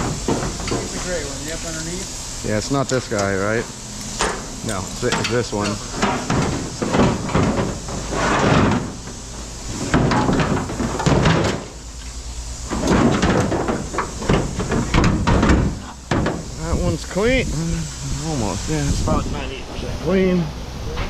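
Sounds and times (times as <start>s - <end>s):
scrap metal knocking and scraping: 0.0s - 1.2s, 4.2s - 11.8s, 12.6s - 16.6s.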